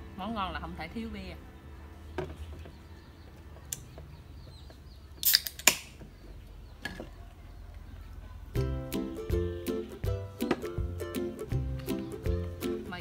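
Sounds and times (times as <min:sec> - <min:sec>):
background music: 0:00.0 - 0:01.9, 0:08.5 - 0:13.0
beer can opening with fizz: 0:05.2 - 0:05.9.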